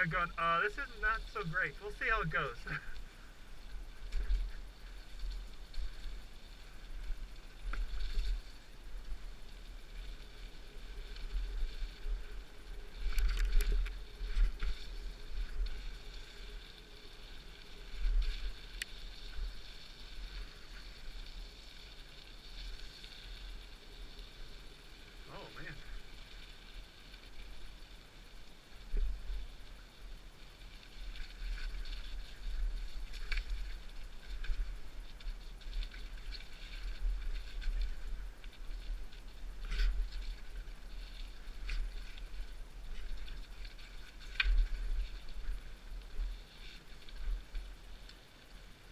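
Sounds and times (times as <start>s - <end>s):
steady low rumble: 0.0s - 21.2s
bike tyres on muddy trail: 0.0s - 48.9s
bike rattling and clicking: 13.0s - 14.9s
wind rumble on microphone: 27.1s - 48.1s.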